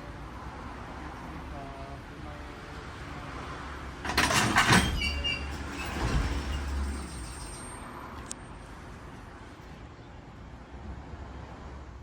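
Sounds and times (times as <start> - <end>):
low train rumble: 0.0 - 11.6
train clattering: 4.0 - 8.0.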